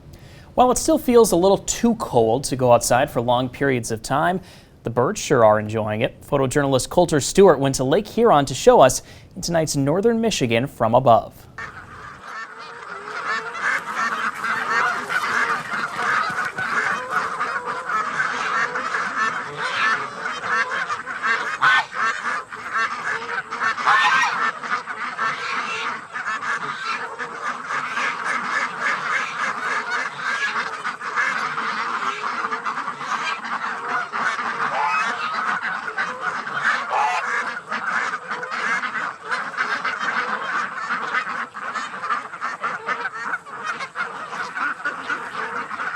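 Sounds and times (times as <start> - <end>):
flock of waterfowl calling: 10.9 - 45.9.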